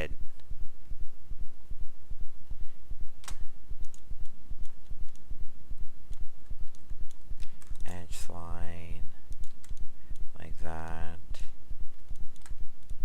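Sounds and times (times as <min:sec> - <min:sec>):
dull low thumps: 0:00.1 - 0:08.2
mouse and keyboard clicks: 0:09.3 - 0:11.1, 0:12.1 - 0:13.0.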